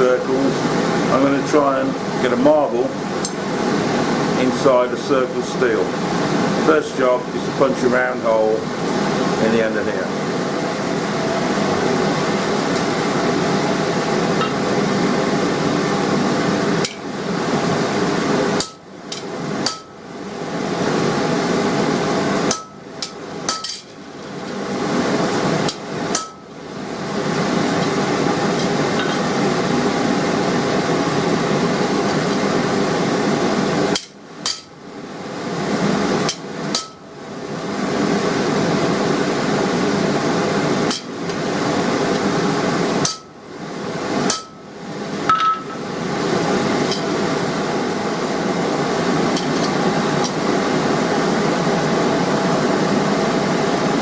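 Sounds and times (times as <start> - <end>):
hammer striking steel on anvil: 19.6 - 20.0, 22.5 - 23.9, 25.7 - 26.4, 34.0 - 34.7, 36.3 - 37.0, 43.0 - 43.3, 44.3 - 44.6, 45.3 - 45.8.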